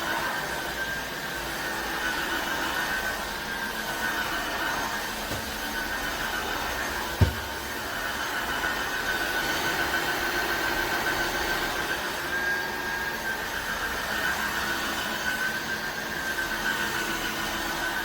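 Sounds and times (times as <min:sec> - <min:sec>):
floor cleaner motor whining: 0:00.0 - 0:18.0
low thump: 0:05.3 - 0:05.7, 0:07.2 - 0:07.8.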